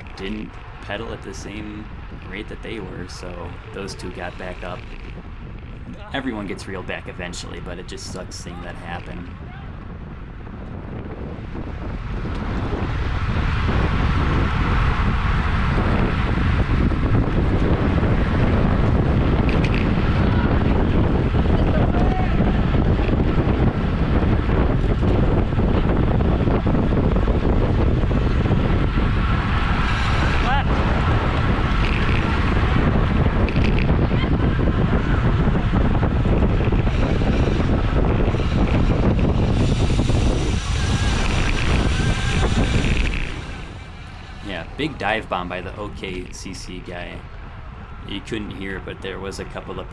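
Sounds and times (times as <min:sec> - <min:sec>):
wind rushing over microphone: 0:00.0 - 0:49.9.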